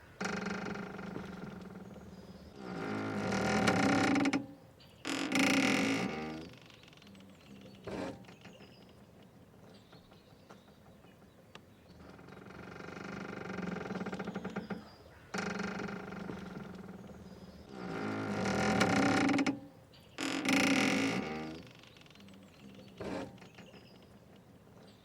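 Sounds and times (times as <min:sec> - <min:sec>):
boat rope creaking: 0:00.0 - 0:10.8, 0:11.9 - 0:24.8.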